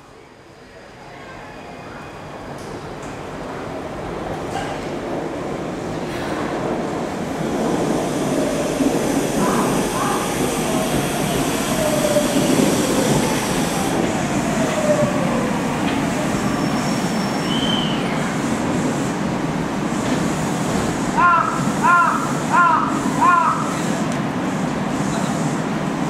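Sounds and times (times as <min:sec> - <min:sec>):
train rail noise: 0:00.0 - 0:26.0.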